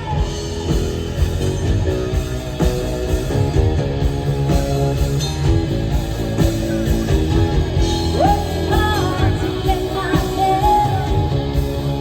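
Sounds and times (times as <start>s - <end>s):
bass guitar: 0.0s - 12.0s
electric guitar: 0.0s - 12.0s
steady drum beat: 0.0s - 12.0s.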